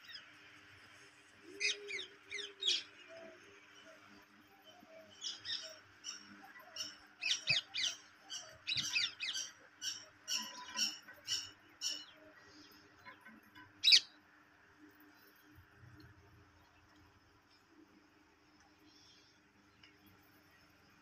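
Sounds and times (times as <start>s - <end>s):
birds chirping: 1.4s - 14.2s.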